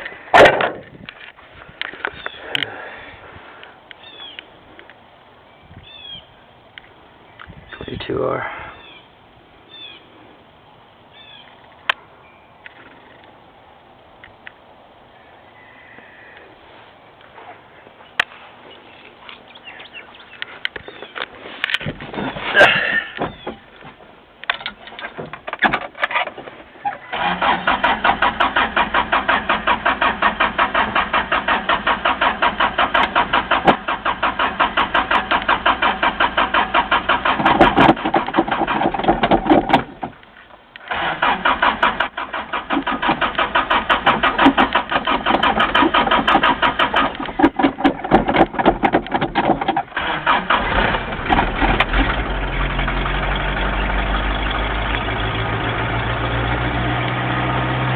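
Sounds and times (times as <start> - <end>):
starter cranking truck engine: 24.7 - 40.2, 40.8 - 57.9
engine idling: 27.0 - 40.2, 40.8 - 57.9.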